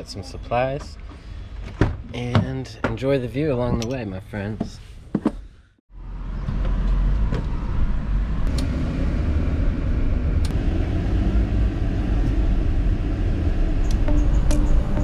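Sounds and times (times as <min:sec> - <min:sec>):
vehicle engine and road noise: 0:04.7 - 0:15.0.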